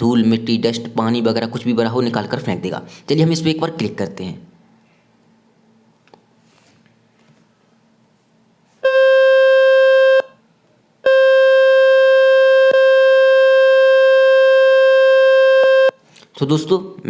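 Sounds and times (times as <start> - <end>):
loud buzzing test tone: 8.8 - 10.4, 11.0 - 16.0.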